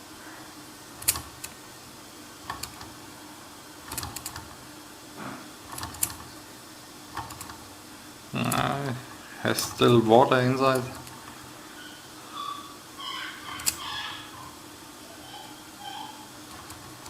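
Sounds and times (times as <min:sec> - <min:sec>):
toy steam engine clicks and spits: 0:13.4 - 0:14.0.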